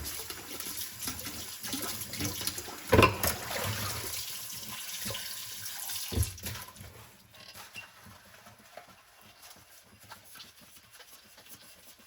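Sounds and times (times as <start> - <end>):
tap water running: 0.0 - 12.0
dish clattering: 2.9 - 3.5
dishes clinking: 2.9 - 3.5.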